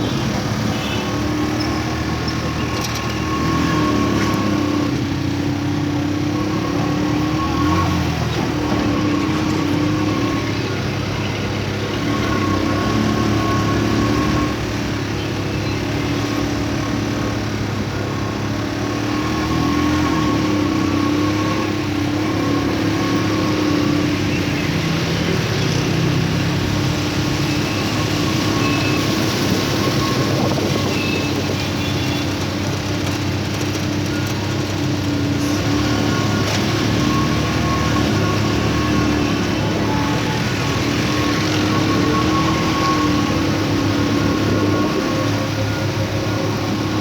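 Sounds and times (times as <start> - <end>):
vehicle engine running: 0.0 - 47.0.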